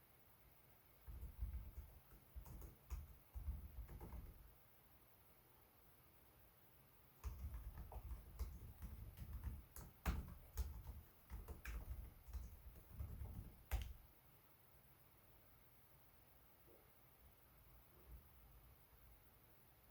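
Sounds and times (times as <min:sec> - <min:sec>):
laptop keyboard typing: 0:01.1 - 0:04.5, 0:07.2 - 0:14.0.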